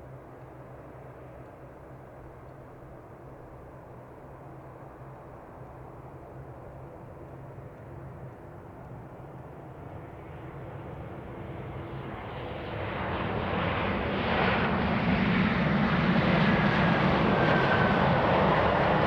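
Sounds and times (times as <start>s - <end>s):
jet airliner landing: 9.8s - 19.0s.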